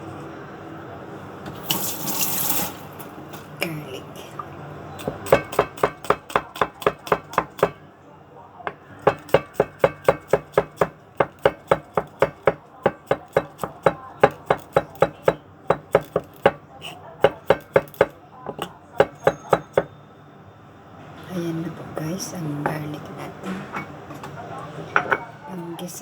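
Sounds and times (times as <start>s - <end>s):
knife chopping on cutting board: 5.0s - 7.8s, 9.0s - 16.6s, 17.2s - 19.9s.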